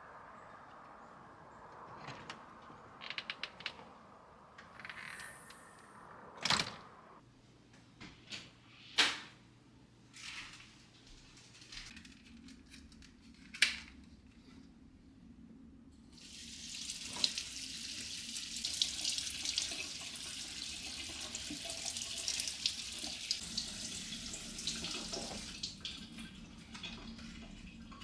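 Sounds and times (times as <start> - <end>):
tap water running into sink: 16.2 - 28.0.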